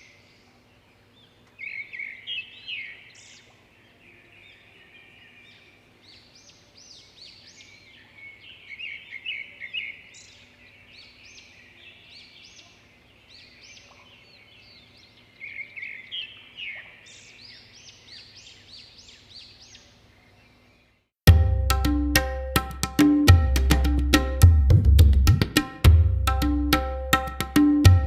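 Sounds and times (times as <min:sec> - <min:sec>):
birds chirping chorus: 0:00.0 - 0:21.1.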